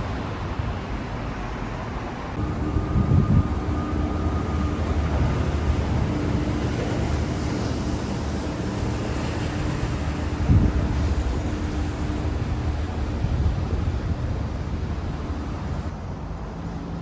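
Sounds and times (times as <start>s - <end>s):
wind buffeting microphone: 0.0s - 16.0s
low traffic rumble: 0.0s - 17.0s
steady hum: 2.4s - 15.9s.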